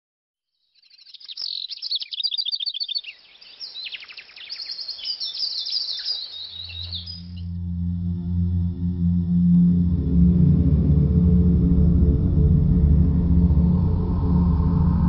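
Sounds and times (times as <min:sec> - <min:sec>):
small birds chirping: 0:00.5 - 0:07.5
low droning tone: 0:06.6 - 0:15.0.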